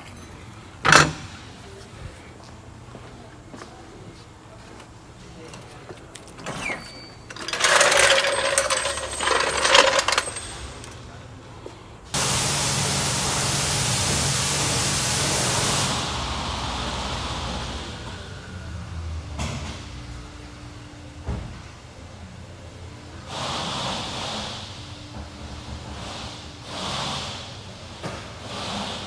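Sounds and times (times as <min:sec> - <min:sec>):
metal parts clattering: 0:06.2 - 0:11.1
compressed air hissing: 0:12.2 - 0:17.8, 0:23.3 - 0:24.9, 0:25.9 - 0:29.0.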